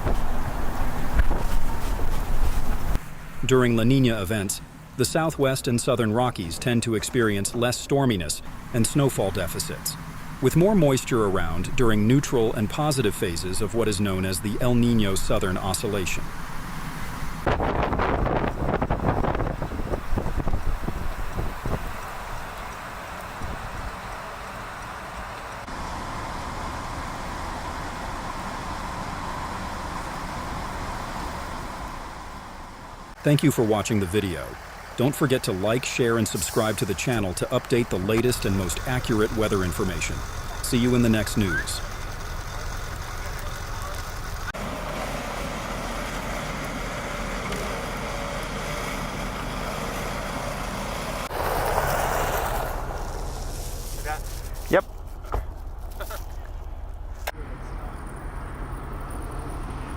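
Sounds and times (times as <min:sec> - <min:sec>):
road traffic rumble and hiss: 0:00.0 - 0:59.9.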